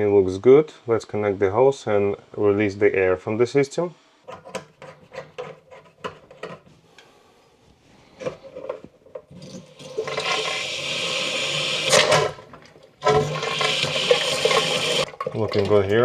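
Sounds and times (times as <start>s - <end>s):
hose handling clicks: 4.3s - 7.1s
water rushing through hose: 9.3s - 16.0s.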